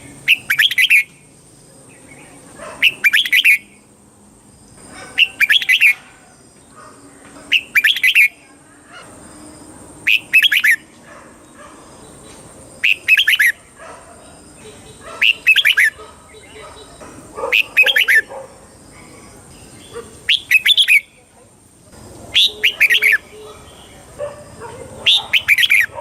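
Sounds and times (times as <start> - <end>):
bird warbling song: 0.0 - 1.2, 1.9 - 3.9, 5.0 - 6.8, 7.4 - 8.4, 10.1 - 10.8, 11.4 - 13.6, 14.2 - 21.3, 22.3 - 26.0.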